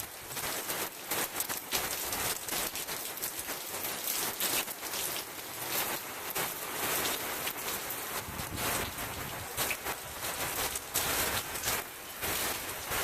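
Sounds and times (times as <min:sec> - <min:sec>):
heavy rain hissing: 0:00.0 - 0:13.0
sharp raindrop hits: 0:00.0 - 0:13.0.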